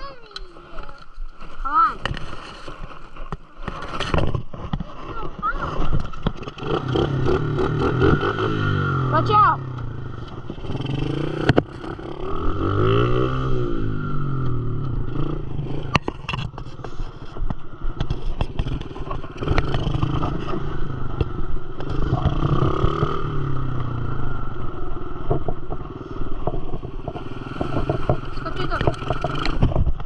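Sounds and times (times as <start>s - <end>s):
dirt bike engine revving: 5.6s - 16.0s, 18.5s - 25.2s, 26.8s - 29.8s.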